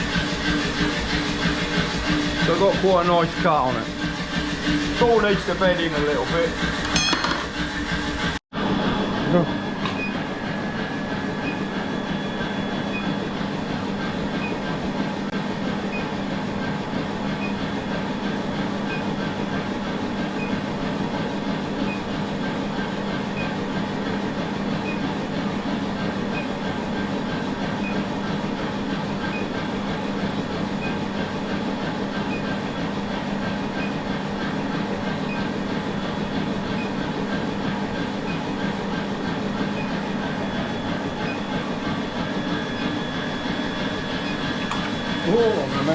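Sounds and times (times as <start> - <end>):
machinery drone: 0.0 - 14.8, 36.7 - 45.9.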